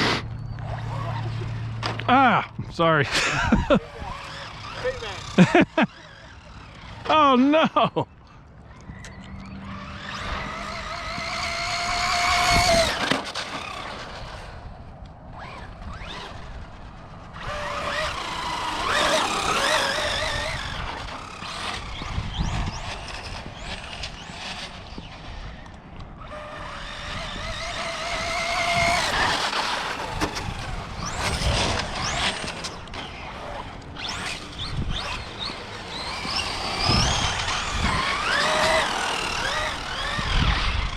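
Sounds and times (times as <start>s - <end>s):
electric motor whine: 3.2s - 7.2s, 8.6s - 14.8s, 15.4s - 40.9s
tyre noise on pavement: 8.7s - 40.9s.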